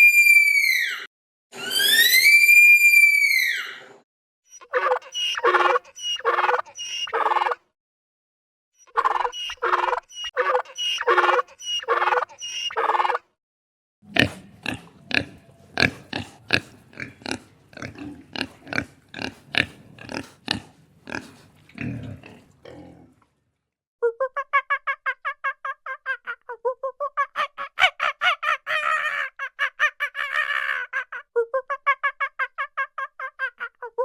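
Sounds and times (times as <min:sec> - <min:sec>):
short repeated animal calls: 0:04.6 - 0:07.6, 0:08.8 - 0:13.2
rapid grunting calls: 0:04.7 - 0:07.6, 0:09.0 - 0:13.2, 0:14.1 - 0:23.2.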